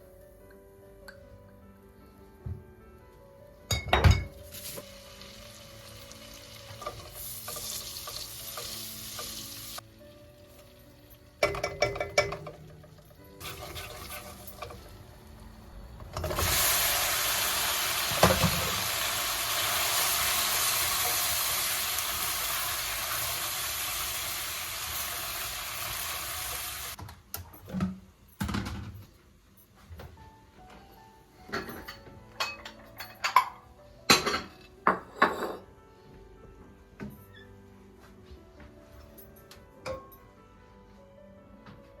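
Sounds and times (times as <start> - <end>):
water running from a tap: 16.4 - 27.0.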